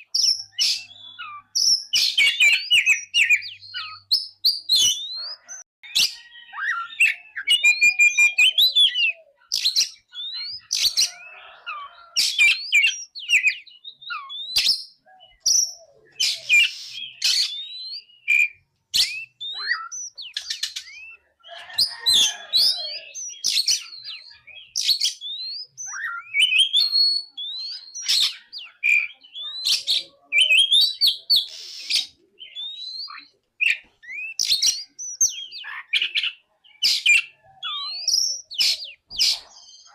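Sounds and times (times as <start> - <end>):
bird singing whistled phrases: 0.0 - 39.9.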